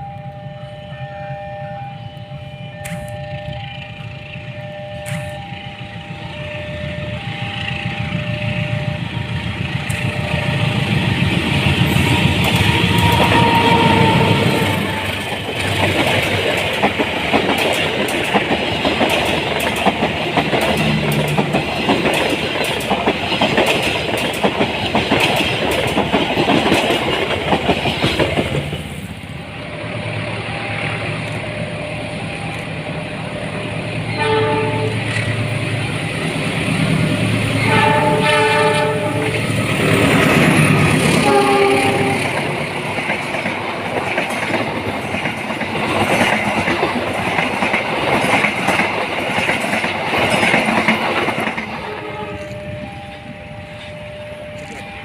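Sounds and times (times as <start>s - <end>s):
train horn: 0.0s - 16.1s, 29.6s - 35.8s, 37.4s - 42.7s, 51.6s - 55.0s
train wheels clattering: 2.9s - 29.2s, 30.7s - 53.0s.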